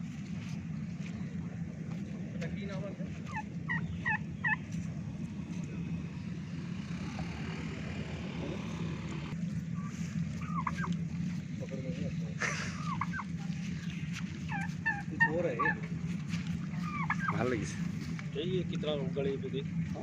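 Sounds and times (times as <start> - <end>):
steady low hum: 0.0 - 20.0
turkey gobbling: 3.0 - 6.2, 6.9 - 18.2.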